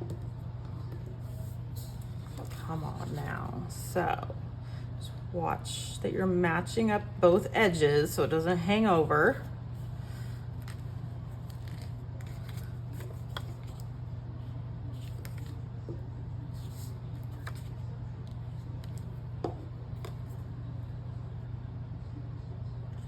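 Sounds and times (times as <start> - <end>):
steady low hum: 0.0 - 23.0
paper rustling: 10.2 - 13.9, 14.9 - 15.6, 16.5 - 17.8.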